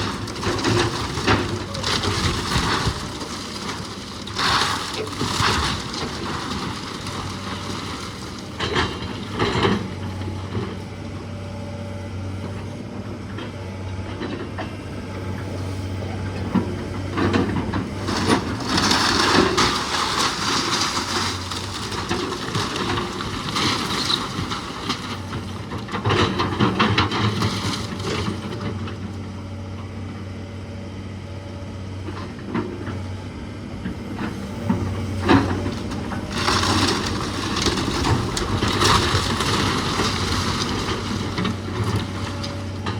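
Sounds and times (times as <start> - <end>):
wood crunching and cracking: 0.0 - 10.4, 17.8 - 28.7, 35.0 - 42.9
engine running: 0.0 - 42.9.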